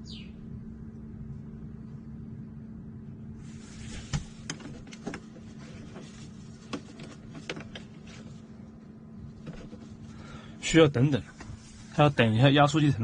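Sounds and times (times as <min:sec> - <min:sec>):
steady low hum: 0:00.0 - 0:13.0
faint rustling hiss: 0:03.4 - 0:08.5, 0:09.3 - 0:12.7
sharp clicks and knocks: 0:06.7 - 0:08.0.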